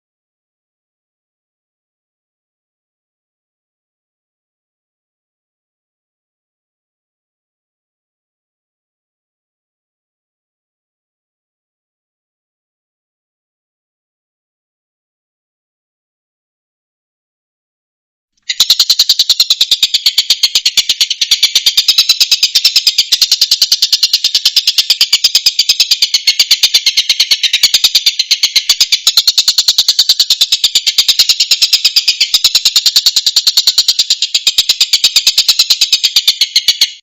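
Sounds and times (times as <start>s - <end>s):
kingfisher chattering call: 18.5s - 37.0s.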